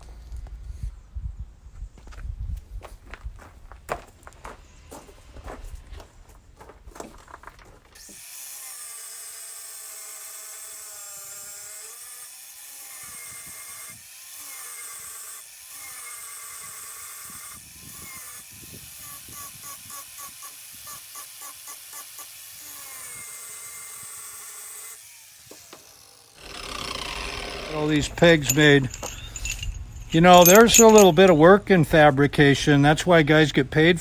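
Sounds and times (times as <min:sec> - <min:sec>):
electric grinder on metal: 0:08.0 - 0:28.4.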